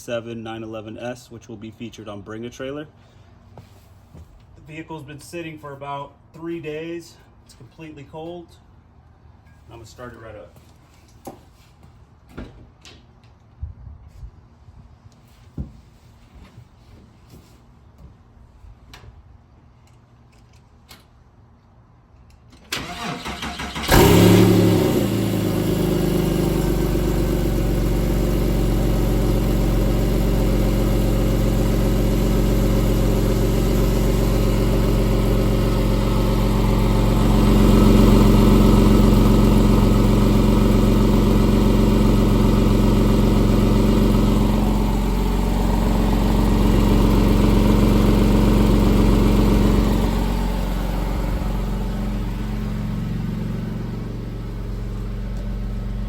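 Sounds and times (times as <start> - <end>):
starter motor cranking: 22.7 - 24.9
car engine idling: 22.9 - 56.0.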